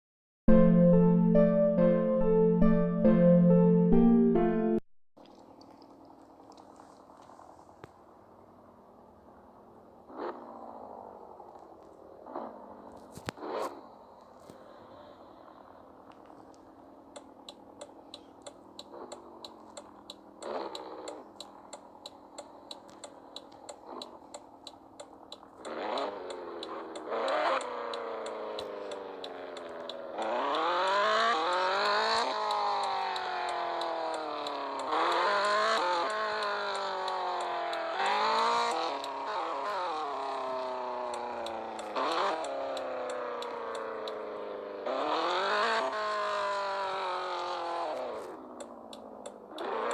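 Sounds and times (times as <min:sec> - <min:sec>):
car engine accelerating: 0:05.2 - 0:49.9
engine ticking: 0:11.6 - 0:49.9.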